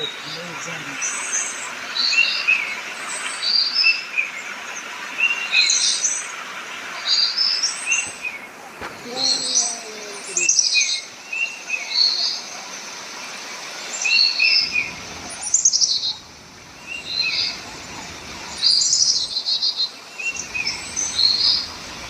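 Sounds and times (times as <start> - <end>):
background hiss: 0.0 - 22.0
birds chirping: 0.0 - 22.0.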